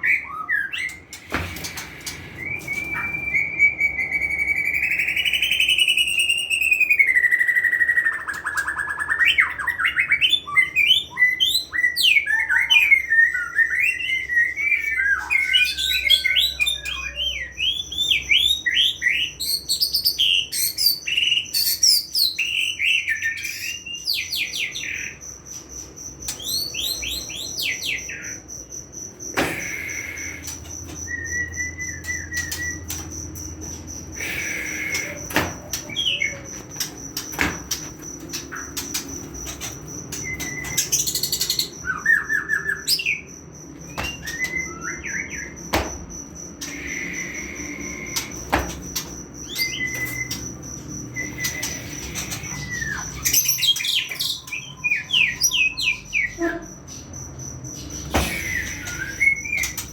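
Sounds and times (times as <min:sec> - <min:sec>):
bird singing whistled song: 0:02.3 - 0:25.1, 0:26.3 - 0:28.3, 0:29.4 - 0:33.1, 0:40.1 - 0:43.3, 0:43.9 - 0:45.9, 0:46.6 - 0:48.8, 0:49.4 - 0:57.0, 0:57.8 - 0:59.9.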